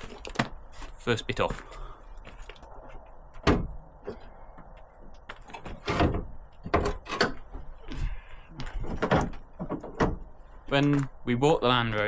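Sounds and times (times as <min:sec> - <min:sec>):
knocks and clunks of car parts: 0:02.8 - 0:08.0, 0:08.6 - 0:11.1.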